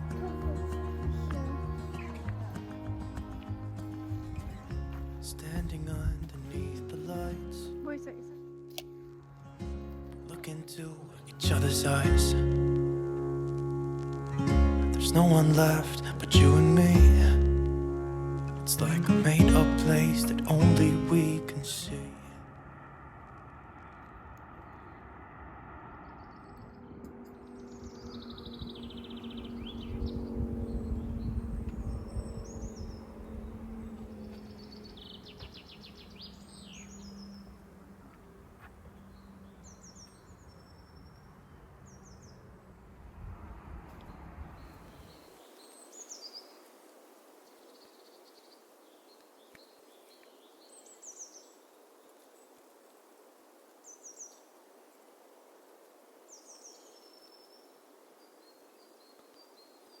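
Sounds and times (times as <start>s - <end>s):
small birds chirping: 0.0s - 9.1s, 26.0s - 42.6s, 44.0s - 54.8s, 55.8s - 60.0s
background music: 0.0s - 22.4s
steady outdoor hiss: 0.0s - 60.0s.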